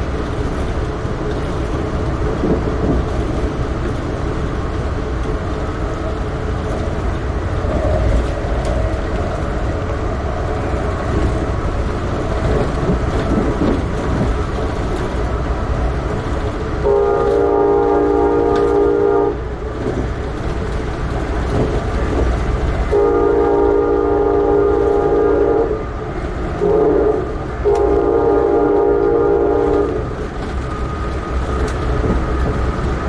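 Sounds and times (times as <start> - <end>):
train rumble and rail noise: 0.0 - 33.0
train horn chord: 16.8 - 19.4, 22.9 - 25.8, 26.6 - 30.0.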